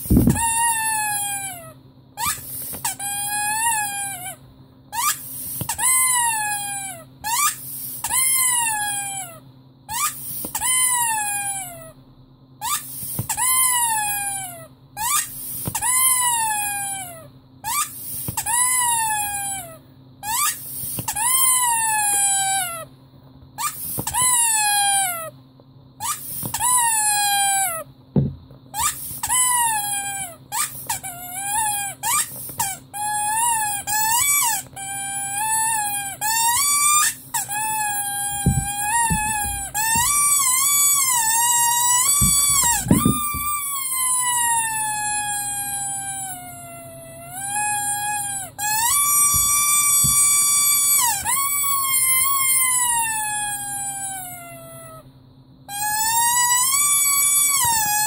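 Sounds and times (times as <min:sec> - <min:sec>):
short dull thump: 0:00.0 - 0:00.5, 0:28.2 - 0:28.6, 0:38.3 - 0:40.2, 0:42.2 - 0:43.6
rubber squeaky toy squeaking: 0:00.0 - 0:12.0, 0:12.6 - 0:22.9, 0:23.6 - 0:25.4, 0:26.0 - 0:55.0, 0:55.7 - 0:58.0
soft knocks: 0:28.2 - 0:28.5, 0:38.4 - 0:40.1.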